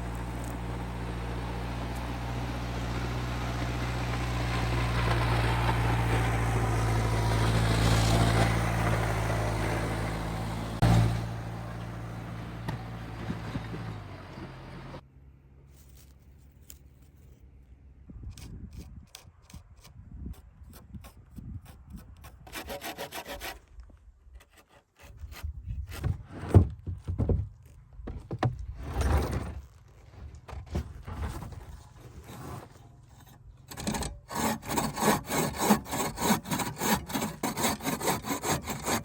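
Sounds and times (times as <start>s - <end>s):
engine humming: 0.0s - 17.6s
hand saw on wood: 18.4s - 26.7s, 31.1s - 39.0s
quiet scraping: 27.6s - 34.9s.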